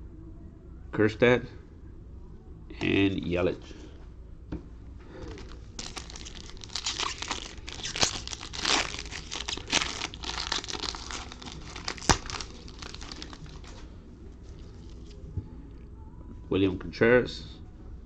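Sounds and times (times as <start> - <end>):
wrapper tearing and crinkling: 5.2 - 13.8.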